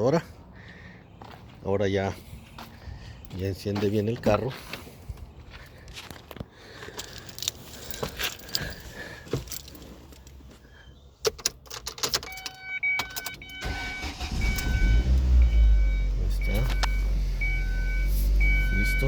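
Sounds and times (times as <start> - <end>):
keys jangling in ignition: 6.8 - 10.5, 11.2 - 18.6
car engine cranking and running: 11.3 - 19.0
dashboard chime: 14.4 - 19.0.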